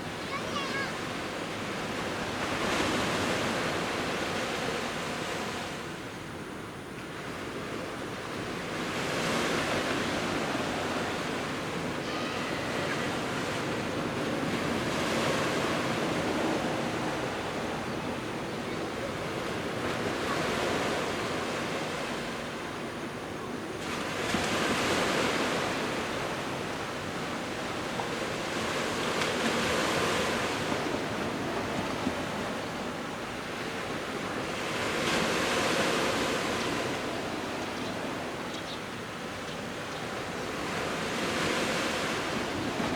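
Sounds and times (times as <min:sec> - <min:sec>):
sea waves breaking on beach: 0:07.5 - 0:22.6, 0:23.8 - 0:38.4, 0:39.2 - 0:42.9.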